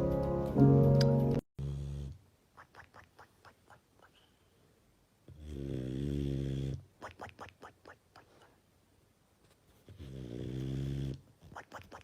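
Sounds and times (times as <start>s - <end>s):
pet snoring: 1.6s - 2.2s, 5.3s - 6.9s, 9.9s - 11.2s.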